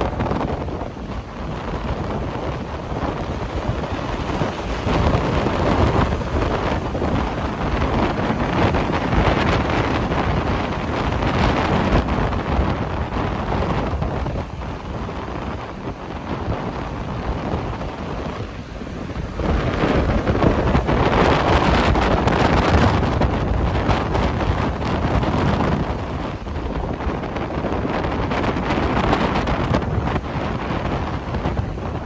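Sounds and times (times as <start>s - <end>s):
sea waves breaking: 0.0s - 32.0s
strong wind buffeting microphone: 0.0s - 32.0s.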